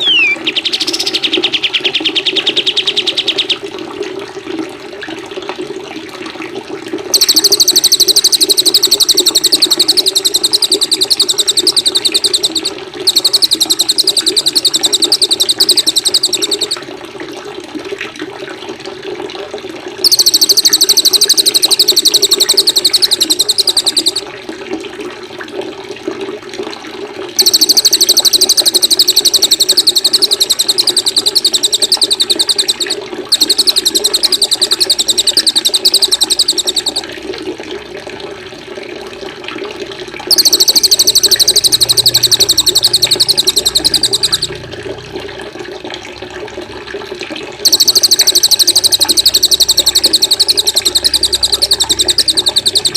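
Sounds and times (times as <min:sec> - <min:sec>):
songbird trilling: 0:00.0 - 0:03.6, 0:07.2 - 0:16.8, 0:20.0 - 0:24.2, 0:27.4 - 0:37.1, 0:40.3 - 0:44.6, 0:47.6 - 0:52.9
running water: 0:00.0 - 0:52.9.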